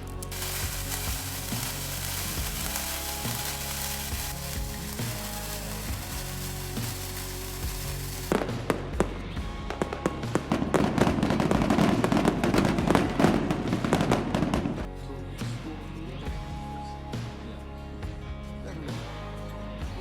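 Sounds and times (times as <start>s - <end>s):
fireworks crackling and popping: 0.0s - 14.9s
background music: 0.0s - 20.0s.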